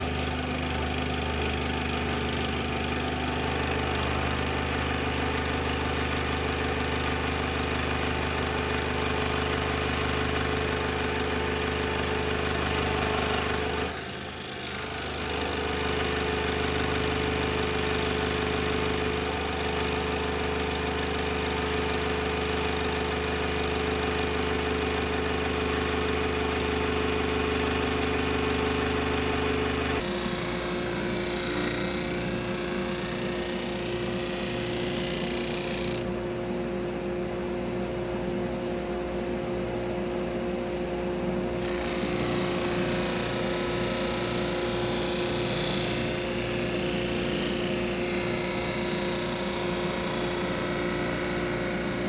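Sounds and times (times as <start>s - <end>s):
scroll saw cutting: 0.0s - 20.1s, 30.0s - 36.1s, 41.6s - 52.0s.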